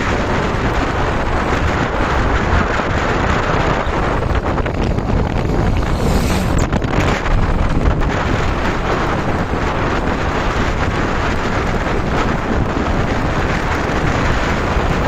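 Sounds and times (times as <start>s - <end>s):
motorbike engine running: 0.0s - 15.0s
wind buffeting microphone: 0.0s - 15.0s.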